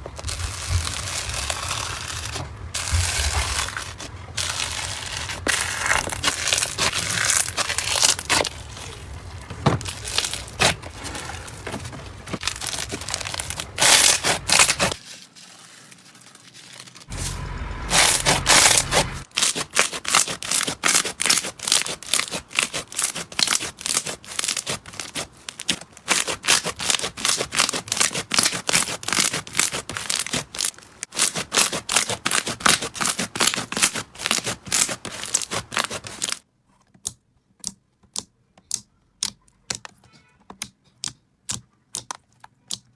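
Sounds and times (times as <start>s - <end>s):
slime squeezed crackling: 0.2s - 11.7s.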